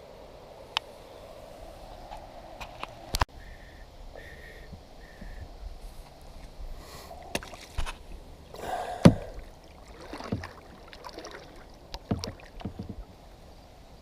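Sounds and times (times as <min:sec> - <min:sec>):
paddle splashing in water: 0:07.2 - 0:13.2
sharp knocks: 0:12.0 - 0:13.0.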